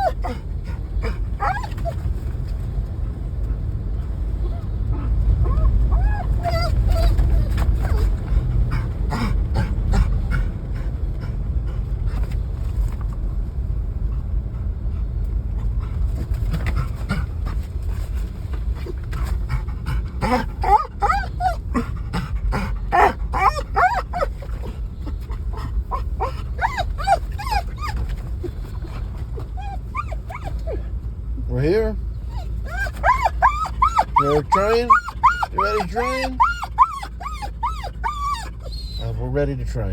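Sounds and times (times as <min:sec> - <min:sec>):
dog whining and yipping: 0:00.0 - 0:02.7, 0:04.0 - 0:10.5, 0:18.6 - 0:30.9, 0:32.2 - 0:39.2
car rumbling: 0:00.0 - 0:39.9.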